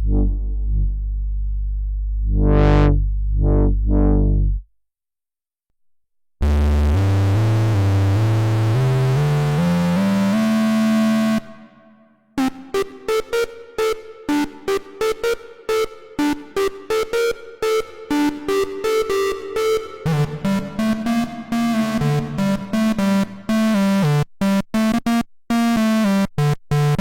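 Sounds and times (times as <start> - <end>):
buzzing synth tone climbing: 0.0 - 4.6, 12.4 - 24.1
synthesizer bass notes filter sweeping: 0.0 - 4.6, 6.4 - 24.2
short staccato synth notes: 11.3 - 24.1.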